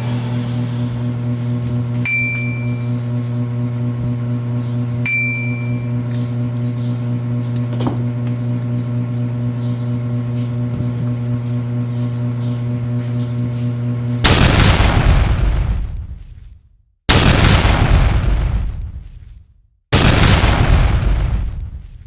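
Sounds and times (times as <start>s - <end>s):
low hum: 0.0s - 22.0s
high ringing chimes: 2.0s - 3.0s, 5.0s - 6.1s.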